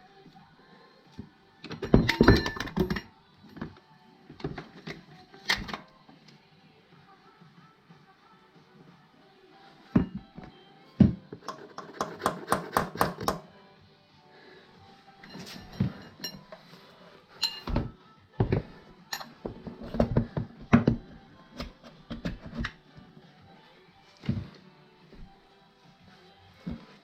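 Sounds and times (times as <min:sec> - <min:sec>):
background music: 0:00.0 - 0:27.0
sharp metallic clinks: 0:17.4 - 0:17.7.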